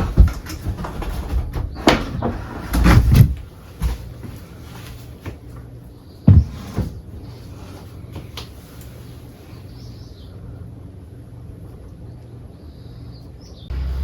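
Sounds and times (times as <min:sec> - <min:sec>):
knocks and bumps: 0:00.0 - 0:04.4, 0:06.2 - 0:07.1.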